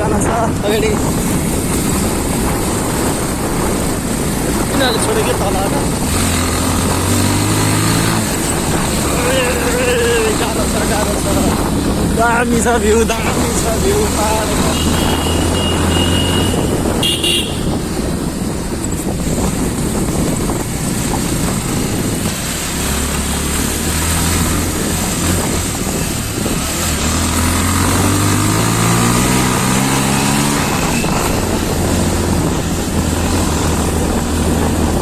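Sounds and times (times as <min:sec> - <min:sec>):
road and wind noise: 0:00.0 - 0:35.0
motorcycle engine running: 0:00.7 - 0:26.8.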